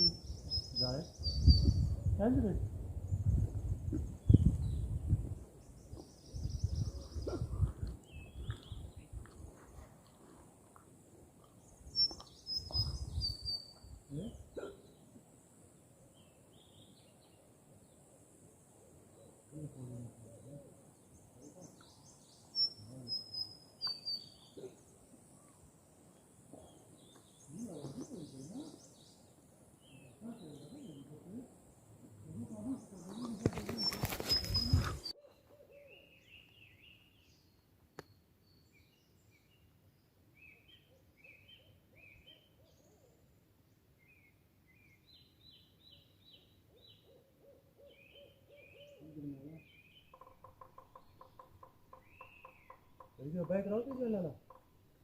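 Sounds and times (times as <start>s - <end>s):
faint high bird chirps: 0.0s - 2.1s, 11.8s - 15.0s, 21.4s - 25.6s, 32.2s - 39.7s, 44.0s - 54.7s
quiet forest background: 0.0s - 55.0s
short low vocal sound: 19.5s - 20.8s.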